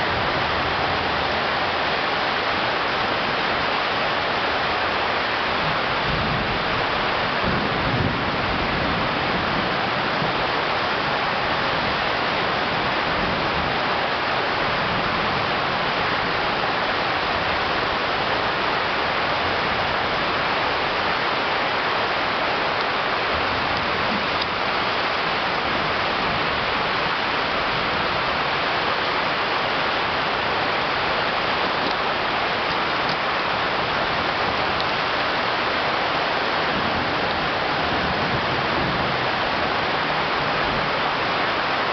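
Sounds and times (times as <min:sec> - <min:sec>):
torrential rain: 0:00.0 - 0:41.9
running water: 0:08.6 - 0:41.9.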